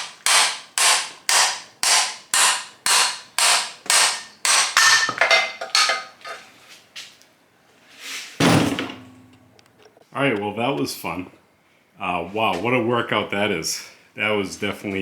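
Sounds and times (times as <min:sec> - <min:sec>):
loud thump: 0:08.4 - 0:09.3.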